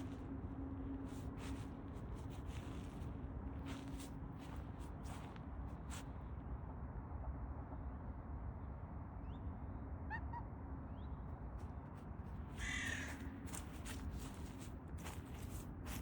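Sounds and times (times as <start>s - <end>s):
steady low rumble: 0.0s - 9.9s.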